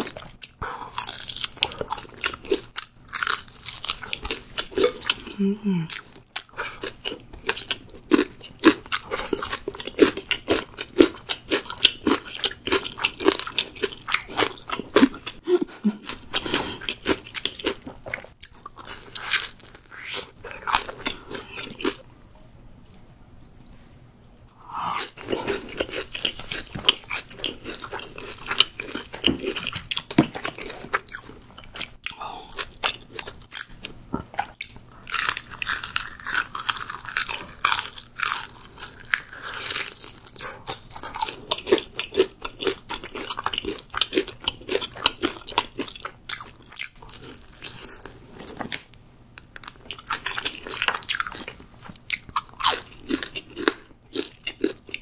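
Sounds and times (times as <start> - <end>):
crunching bites of fried chicken: 0.9 - 4.4, 34.5 - 48.2.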